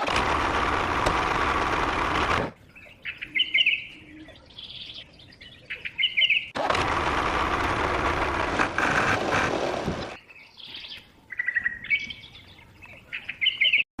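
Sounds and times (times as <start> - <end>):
birds chirping: 2.5 - 6.6, 9.3 - 13.9.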